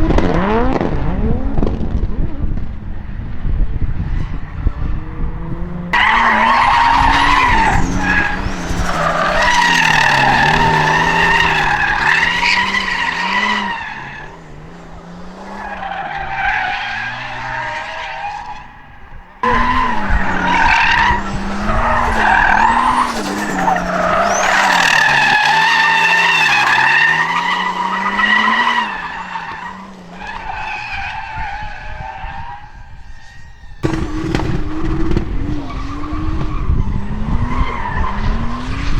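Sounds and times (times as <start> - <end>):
car engines revving: 0.0 - 38.9
tyres screeching: 5.9 - 14.4, 19.4 - 29.8.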